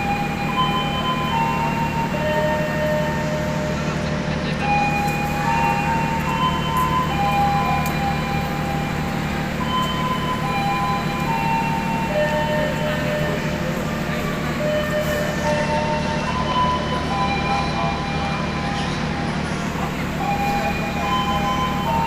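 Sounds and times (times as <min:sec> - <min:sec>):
train engine hum: 0:00.0 - 0:22.0
high held tones: 0:04.6 - 0:19.1, 0:19.7 - 0:22.0.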